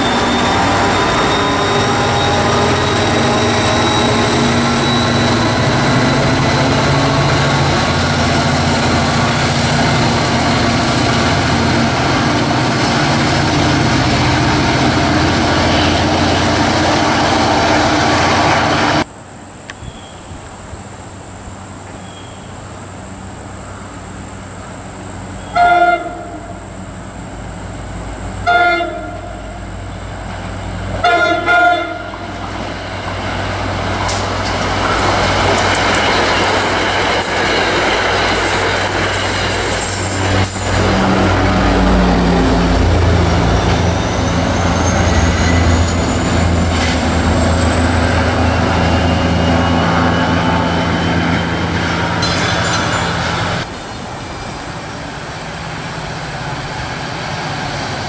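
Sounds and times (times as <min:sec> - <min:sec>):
train horn blasts: 0:00.0 - 0:08.1, 0:25.4 - 0:26.7, 0:28.4 - 0:29.8, 0:31.0 - 0:32.4
diesel locomotive drone: 0:00.0 - 0:58.0
train wheels rumbling on rail: 0:00.0 - 0:58.0.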